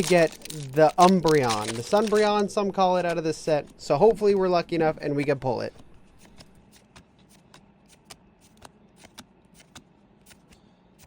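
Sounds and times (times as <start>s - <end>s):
trading cards clicking and rustling: 0.0s - 4.4s, 5.7s - 10.6s.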